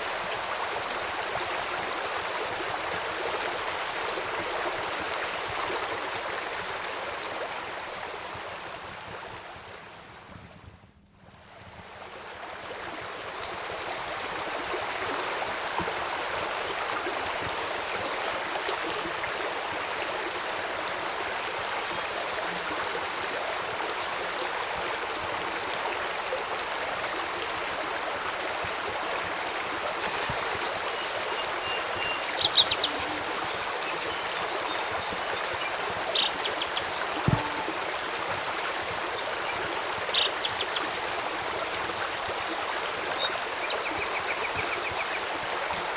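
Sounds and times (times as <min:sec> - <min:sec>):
river water rushing: 0:12.2 - 0:45.9.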